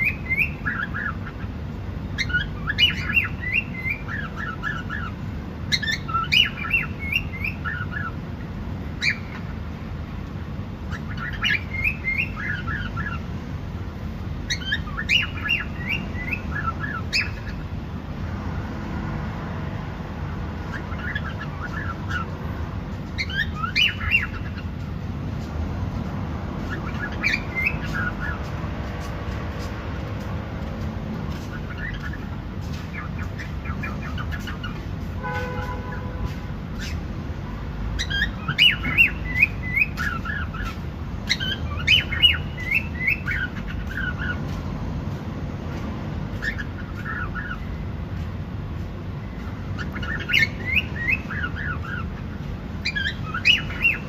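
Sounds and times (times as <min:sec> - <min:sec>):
cockatiel chirping: 0:00.0 - 0:01.4, 0:02.2 - 0:08.2, 0:09.0 - 0:09.5, 0:10.9 - 0:13.2, 0:14.4 - 0:17.6, 0:20.7 - 0:22.3, 0:23.2 - 0:24.7, 0:26.6 - 0:28.5, 0:31.3 - 0:34.8, 0:38.0 - 0:44.4, 0:46.4 - 0:47.7, 0:49.8 - 0:54.0
low background noise: 0:00.0 - 0:54.0.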